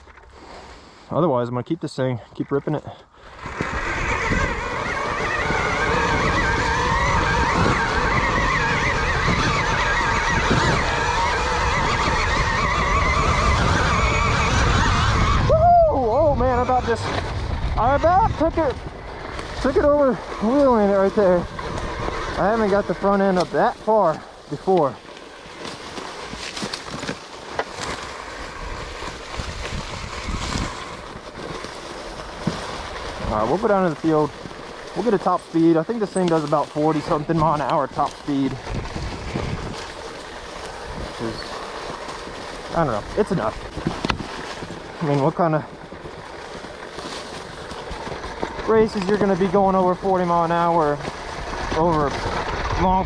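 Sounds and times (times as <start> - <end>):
tyre noise: 2.2 - 53.0
electric motor whine: 3.2 - 15.6, 16.2 - 35.2
wind buffeting: 3.2 - 53.0.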